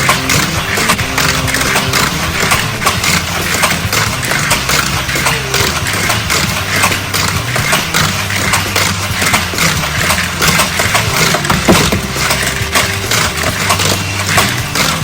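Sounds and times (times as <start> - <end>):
engine sound effect: 0.0 - 15.0
toy cars rattling on track: 0.0 - 15.0.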